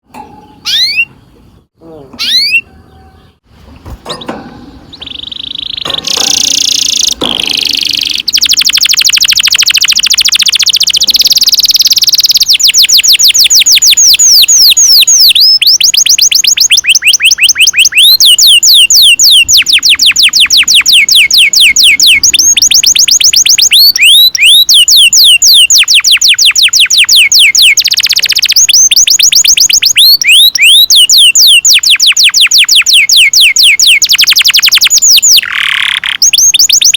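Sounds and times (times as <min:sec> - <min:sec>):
canary singing rolling trills: 0:00.0 - 0:36.9.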